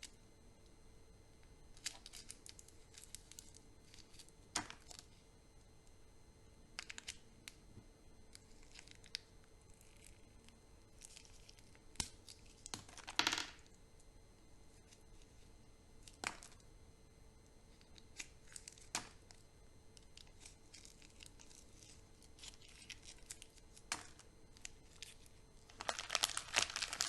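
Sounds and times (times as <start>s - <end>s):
wrapper crinkling: 24.9s - 27.0s.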